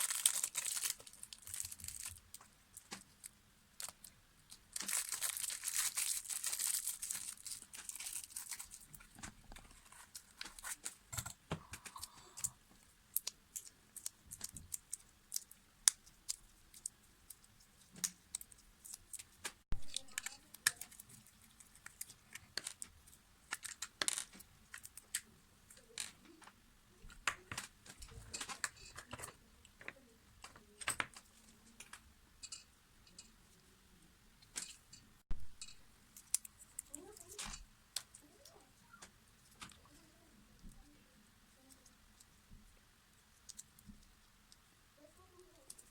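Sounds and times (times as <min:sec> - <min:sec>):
small hard parts clicking and clinking: 0:00.0 - 0:26.5, 0:34.4 - 0:38.6.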